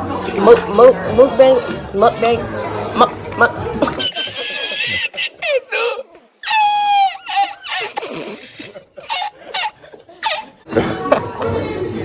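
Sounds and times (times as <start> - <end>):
background music: 0.0 - 4.1, 10.7 - 12.0
voices: 0.0 - 4.3
people laughing: 0.7 - 12.0.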